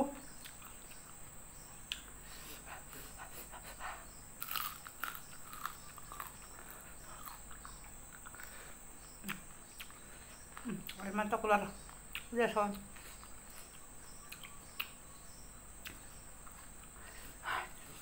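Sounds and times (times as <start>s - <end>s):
person chewing food: 0.3s - 3.8s, 4.4s - 11.0s, 11.9s - 15.0s.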